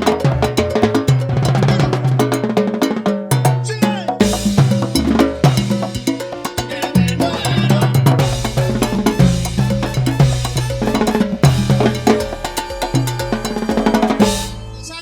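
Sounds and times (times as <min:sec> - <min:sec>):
salsa backing track: 0:00.0 - 0:15.0
timbales shell and rim strikes: 0:08.2 - 0:14.8.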